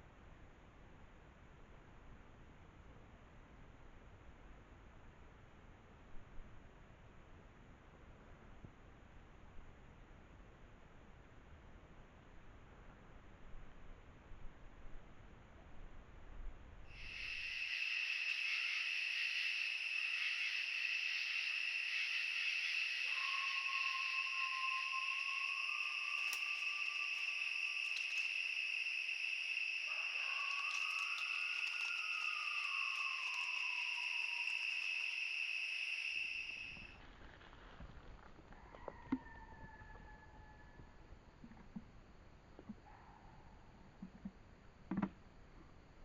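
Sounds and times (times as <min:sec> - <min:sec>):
high-pitched insect buzz: 0:17.0 - 0:36.9
faint whistled notes: 0:23.0 - 0:28.0, 0:29.9 - 0:35.1.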